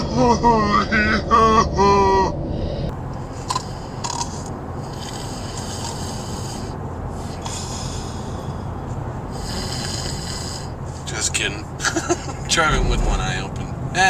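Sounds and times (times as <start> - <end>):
car cabin road rumble: 10.7 - 14.0.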